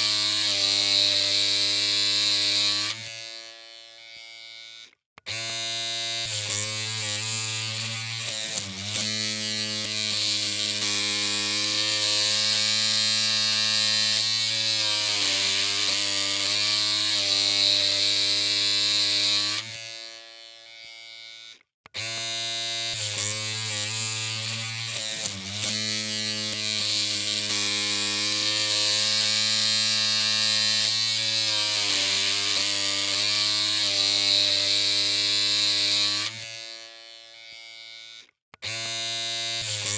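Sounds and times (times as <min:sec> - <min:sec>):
electric hair clippers buzzing: 0:00.0 - 0:39.9.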